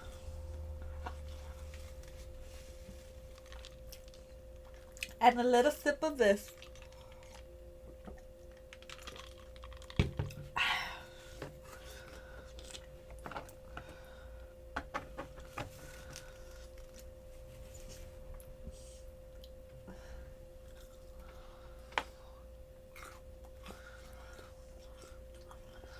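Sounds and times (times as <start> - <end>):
faint steady hum: 0.0 - 25.9
chewing crunchy food: 3.3 - 5.2, 6.4 - 10.0, 11.7 - 13.6, 20.6 - 21.4, 22.9 - 25.9
person sipping: 22.9 - 25.9.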